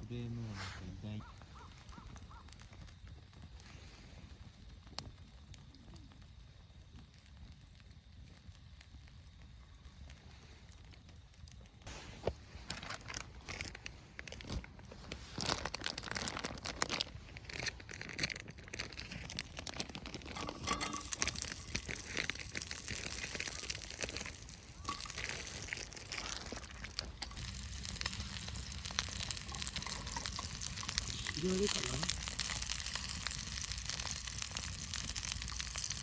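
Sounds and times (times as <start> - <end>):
crinkling and rustling: 10.3 - 36.0.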